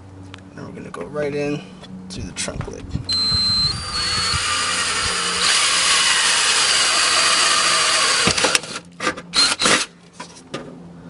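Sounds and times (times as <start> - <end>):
power drill boring sheet metal: 3.1 - 8.8, 9.4 - 9.9.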